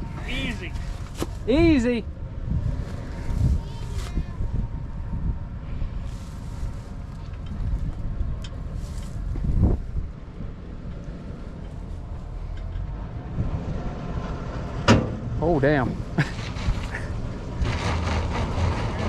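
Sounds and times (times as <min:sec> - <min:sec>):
truck engine low rumble: 0:00.0 - 0:19.0
scrapes: 0:16.2 - 0:19.0.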